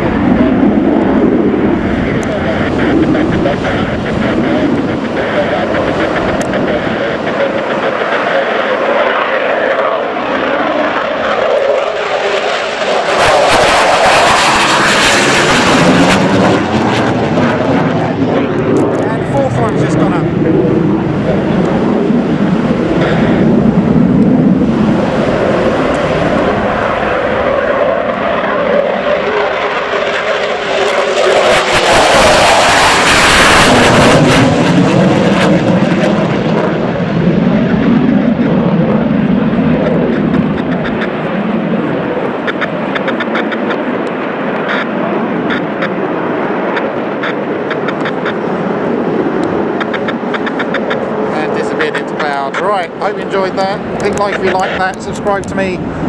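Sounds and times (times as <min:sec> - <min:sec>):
jet engines roaring: 0:00.0 - 0:56.0
sharp crackle: 0:42.3 - 0:48.5, 0:49.3 - 0:52.6.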